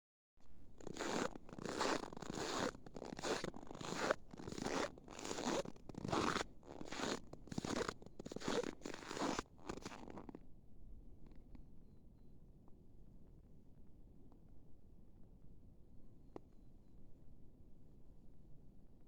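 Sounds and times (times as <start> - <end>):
footsteps crunching in snow: 0.8 - 10.1.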